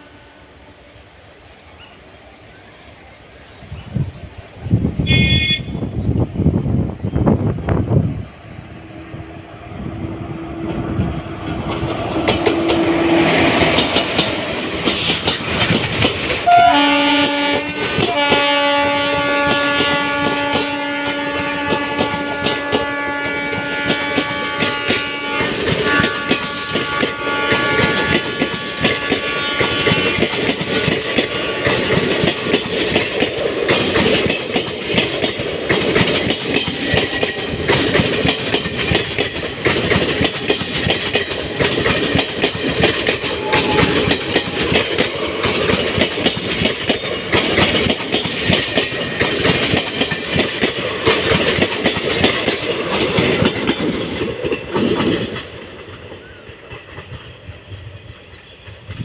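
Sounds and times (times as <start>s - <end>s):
train horn tone: 5.0s - 6.0s, 16.4s - 30.3s, 43.1s - 44.9s
train wheels clattering over rail joints: 10.6s - 59.0s.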